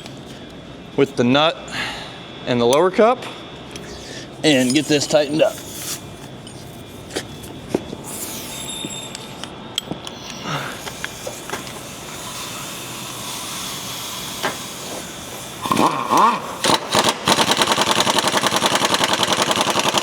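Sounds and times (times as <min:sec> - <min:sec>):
steady hiss: 0:04.2 - 0:06.2, 0:10.0 - 0:16.7.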